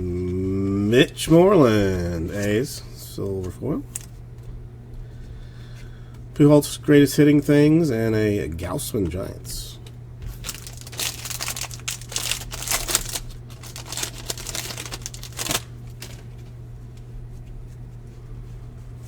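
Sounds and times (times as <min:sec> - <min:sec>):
wrapper crinkling: 0:10.3 - 0:16.6.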